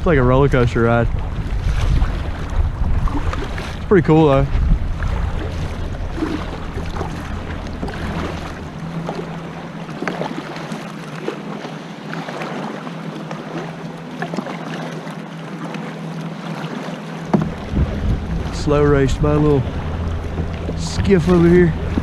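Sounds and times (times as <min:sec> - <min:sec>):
wind buffeting microphone: 0:00.0 - 0:10.2, 0:17.3 - 0:22.0
boat motor humming: 0:00.0 - 0:22.0
river water splashing around kayak: 0:00.0 - 0:22.0.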